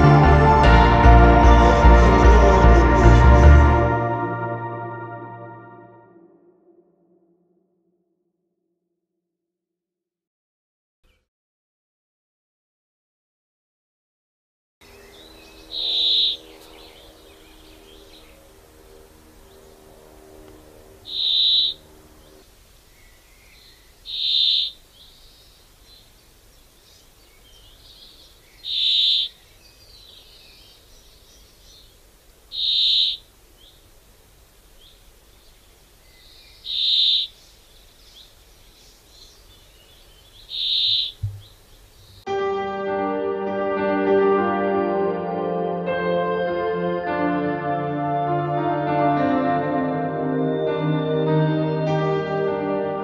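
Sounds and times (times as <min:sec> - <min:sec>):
faint low drone: 0:00.0 - 0:07.8, 0:14.8 - 0:22.5
faint bird chirping: 0:14.8 - 0:20.2, 0:21.0 - 0:42.3
loud high bird call: 0:14.9 - 0:22.4, 0:24.1 - 0:24.8, 0:28.6 - 0:29.4, 0:32.5 - 0:33.3, 0:36.6 - 0:37.4, 0:40.2 - 0:42.2.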